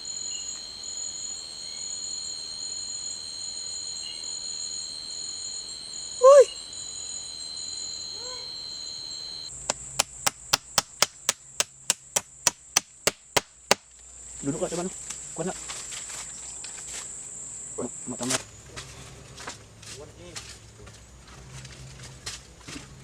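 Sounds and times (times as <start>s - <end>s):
insect chorus buzzing: 0.0s - 18.6s
chopping on wood: 9.7s - 13.8s.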